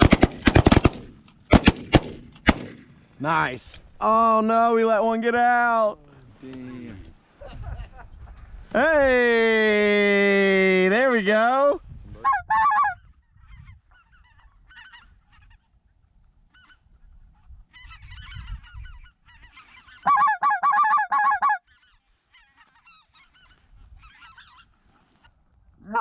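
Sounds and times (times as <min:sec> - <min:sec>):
goose honking: 0:12.2 - 0:15.8, 0:16.5 - 0:25.3.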